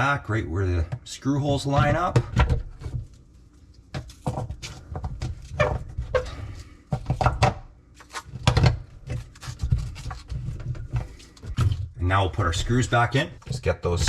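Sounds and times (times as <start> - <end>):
plastic parts clicking and knocking: 6.9 - 11.9.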